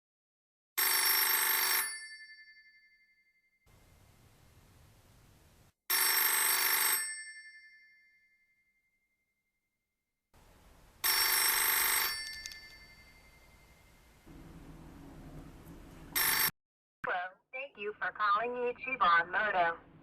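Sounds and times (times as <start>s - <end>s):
telephone bell ringing: 0.8s - 3.2s, 5.9s - 8.6s, 11.0s - 14.0s, 16.2s - 16.5s.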